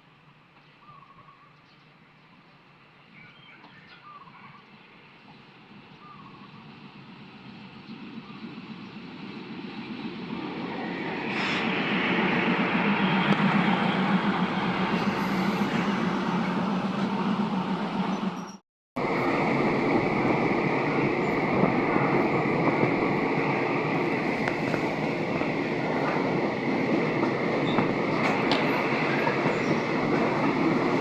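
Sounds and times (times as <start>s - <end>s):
diesel train running on rails: 1.9s - 31.0s.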